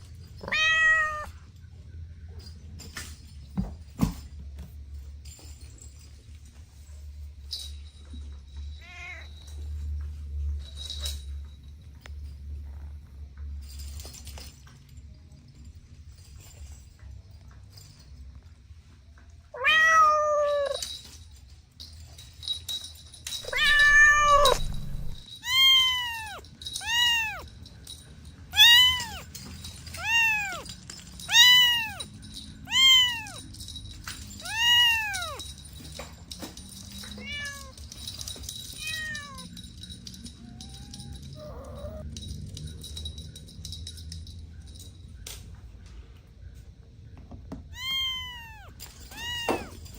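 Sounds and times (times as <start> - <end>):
cats meowing: 0.4 - 1.5, 8.8 - 9.5, 19.5 - 20.8, 23.4 - 27.5, 28.6 - 33.5, 34.4 - 35.5, 37.1 - 38.0, 38.8 - 39.6, 40.3 - 42.2, 47.6 - 49.9.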